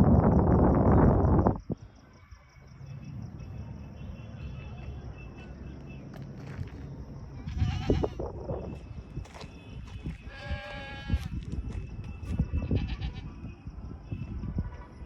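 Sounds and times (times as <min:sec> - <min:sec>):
animal bleating: 0:07.4 - 0:08.2, 0:10.3 - 0:11.3, 0:12.7 - 0:13.3.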